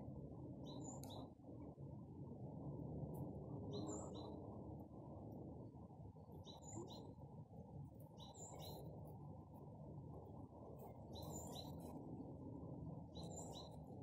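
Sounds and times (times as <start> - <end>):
steady low rumble: 0.0 - 14.0
small bird chirping faintly: 0.5 - 1.4, 3.5 - 4.5, 6.3 - 7.3, 8.0 - 9.3, 10.7 - 12.0, 13.0 - 14.0.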